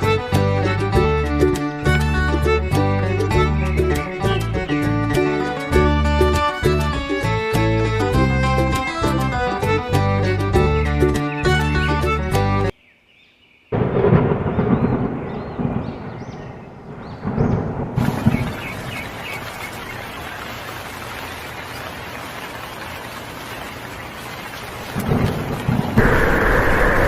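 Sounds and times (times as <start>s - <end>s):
thunder rumbling: 13.8s - 19.2s, 24.9s - 27.0s
heavy rain hissing: 18.0s - 27.0s.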